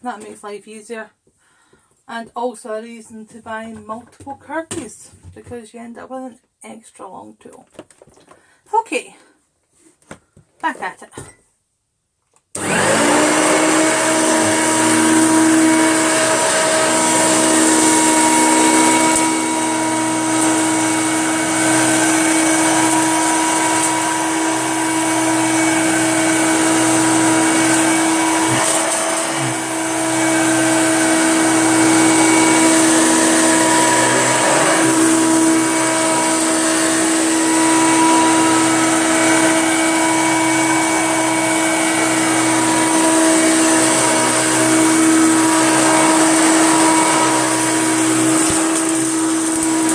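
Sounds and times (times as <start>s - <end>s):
upright vacuum cleaner running: 12.6s - 49.9s.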